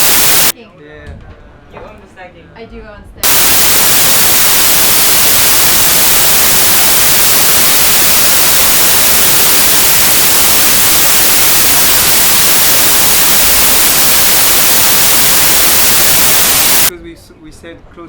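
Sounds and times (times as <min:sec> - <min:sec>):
loud steady static hiss: 0:00.0 - 0:00.6, 0:03.2 - 0:16.9.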